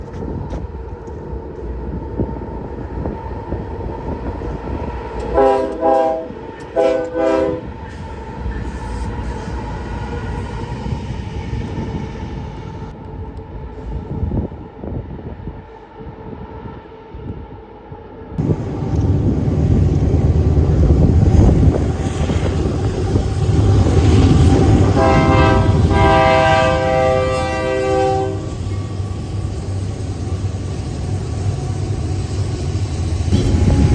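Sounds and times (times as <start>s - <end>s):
diesel locomotive engines rumbling: 0.0s - 33.9s
locomotive air horn blasts: 5.3s - 7.7s, 24.7s - 28.6s.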